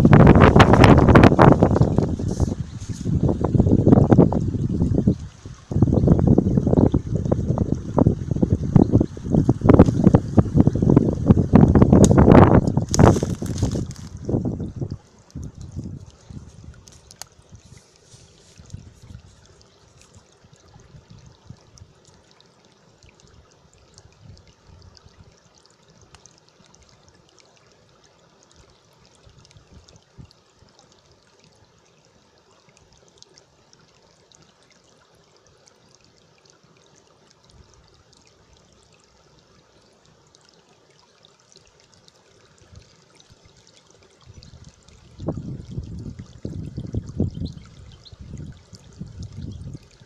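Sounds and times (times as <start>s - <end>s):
wind buffeting microphone: 0.0s - 16.9s, 44.3s - 50.0s
stream trickling and splashing: 0.0s - 50.0s.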